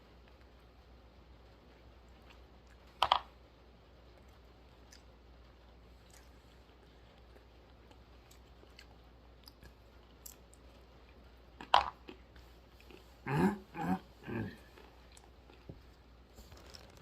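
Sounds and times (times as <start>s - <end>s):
chewing almonds: 4.1s - 5.2s, 5.8s - 17.0s.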